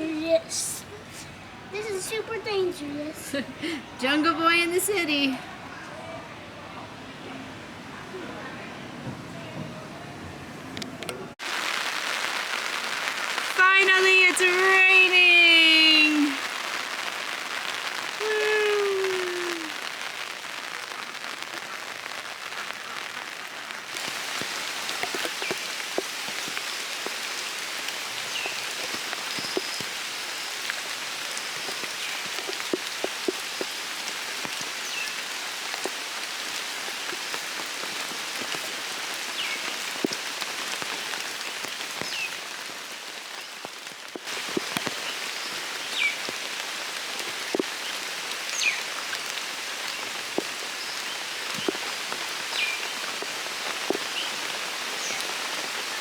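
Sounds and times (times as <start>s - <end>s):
steady rain falling: 0.0s - 56.0s
raindrops tapping: 10.8s - 56.0s.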